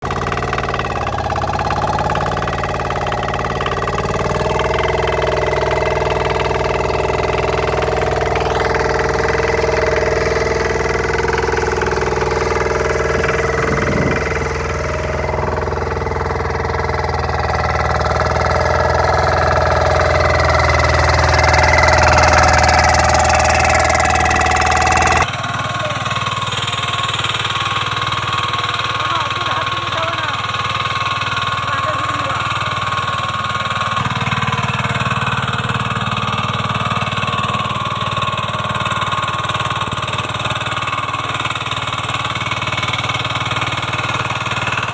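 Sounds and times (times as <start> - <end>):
different engine running: 0.0 - 44.9
walk-behind tractor engine running: 0.0 - 44.9.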